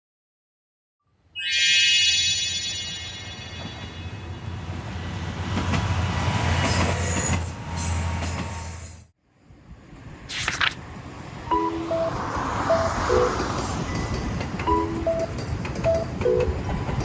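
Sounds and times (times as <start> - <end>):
train running with low rumble: 2.8 - 17.0.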